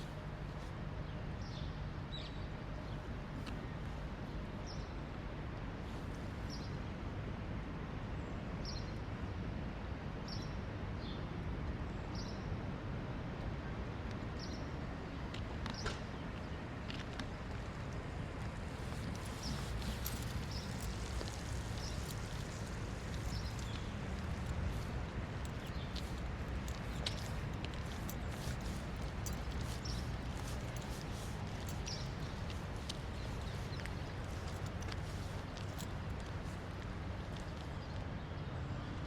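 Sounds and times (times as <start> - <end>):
city traffic rumble: 0.0 - 39.0.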